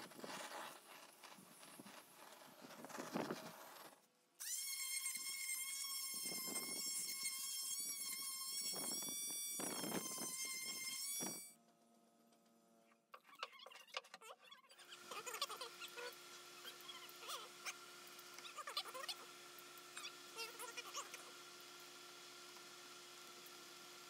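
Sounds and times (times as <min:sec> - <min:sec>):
power tool grinding wood: 0:00.0 - 0:11.5
power tool motor whine: 0:01.6 - 0:11.6.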